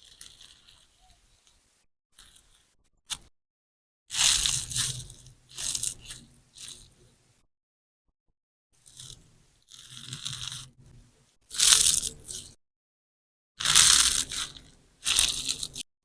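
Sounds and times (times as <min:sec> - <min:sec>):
slime sponge crackling squishes: 0:00.0 - 0:02.8, 0:04.1 - 0:07.2, 0:13.6 - 0:15.9.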